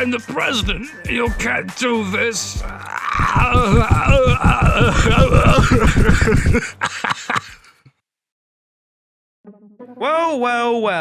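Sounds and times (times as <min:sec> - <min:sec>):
wavering laugh-like voice: 0:02.7 - 0:07.8
rapid pulsing: 0:02.9 - 0:06.7.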